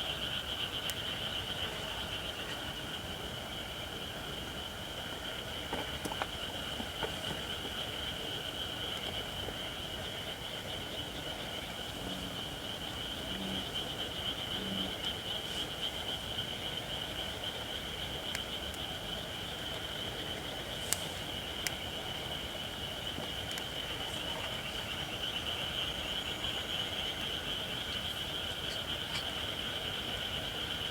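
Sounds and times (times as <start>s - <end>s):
high insect chorus: 0.0s - 30.9s
bullfrog croaks: 11.2s - 30.9s.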